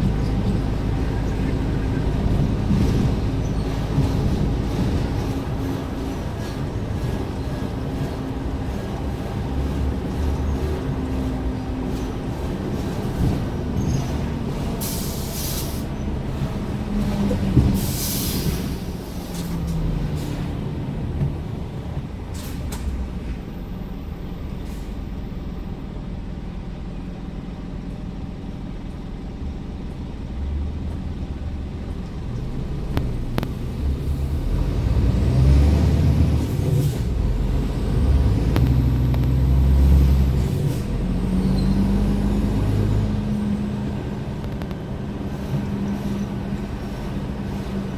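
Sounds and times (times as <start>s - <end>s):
truck diesel engine running: 0.0s - 22.4s, 23.0s - 47.9s
air brake hisses: 14.8s - 15.9s, 17.8s - 19.6s.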